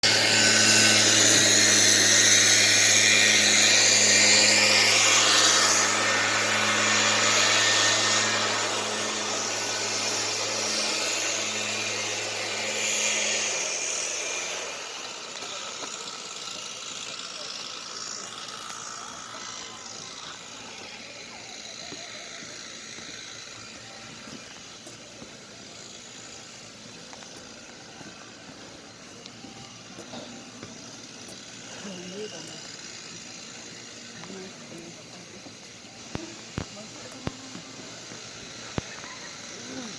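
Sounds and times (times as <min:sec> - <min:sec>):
motor humming: 0:00.0 - 0:39.9.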